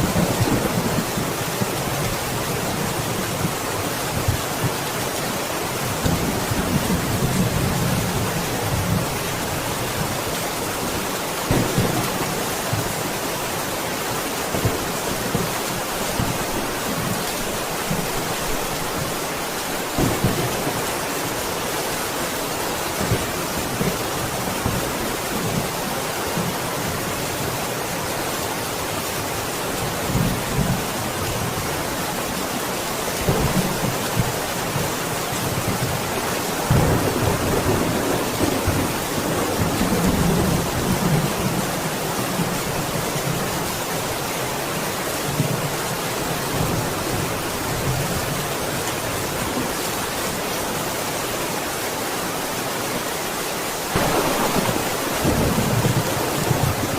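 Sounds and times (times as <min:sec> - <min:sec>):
heavy rain: 0:00.0 - 0:56.9
thunder rumbling: 0:53.9 - 0:56.9.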